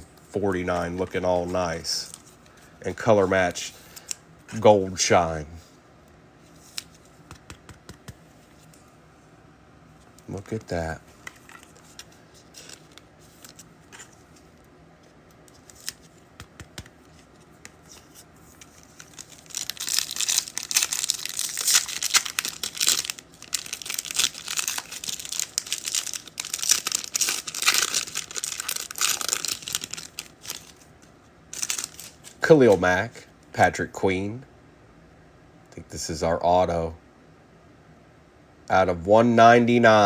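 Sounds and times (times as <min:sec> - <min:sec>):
wrapper crinkling and tearing: 0:17.8 - 0:30.9, 0:31.5 - 0:32.5.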